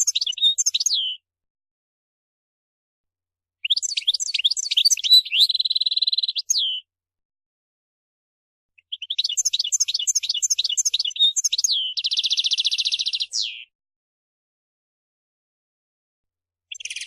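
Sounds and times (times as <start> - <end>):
goldfinch singing: 0.0 - 1.2, 3.6 - 6.9, 8.8 - 13.7, 16.7 - 17.0.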